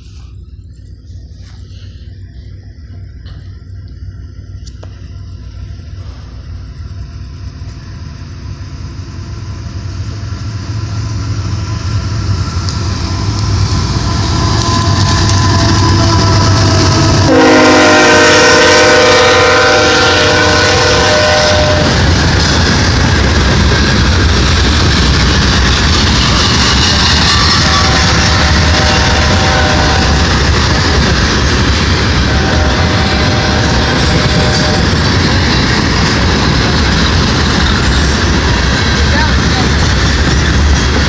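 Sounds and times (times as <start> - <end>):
freight train rumble: 0.0 - 41.0
train cars clattering: 0.0 - 41.0
multi-tone air horn: 14.6 - 22.0, 26.8 - 30.9, 32.3 - 34.9.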